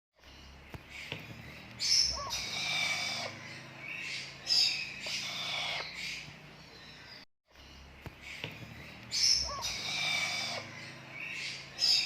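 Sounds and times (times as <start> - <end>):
parrot vocalizing: 1.8 - 6.3, 9.2 - 12.0.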